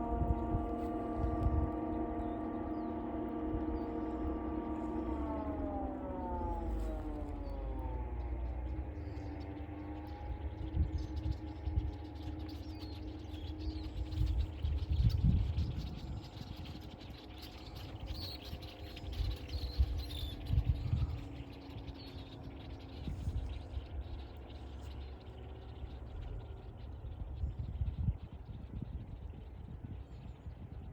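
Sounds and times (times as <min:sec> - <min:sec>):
low rumbles: 0:00.0 - 0:18.1
steady low hum: 0:00.0 - 0:30.9
small birds chirping: 0:06.1 - 0:30.9.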